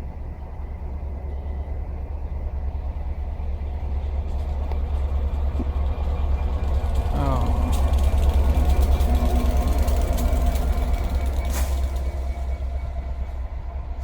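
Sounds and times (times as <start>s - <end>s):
diesel locomotive engine drone: 0.0s - 14.0s.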